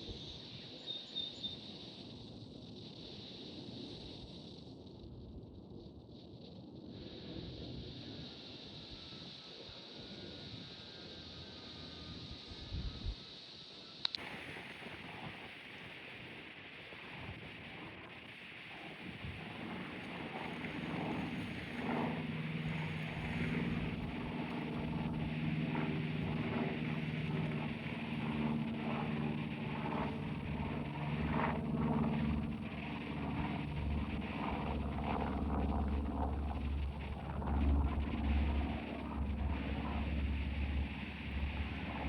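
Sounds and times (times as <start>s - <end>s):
aircraft engines droning: 14.1s - 42.0s
deep rumble: 23.1s - 42.0s.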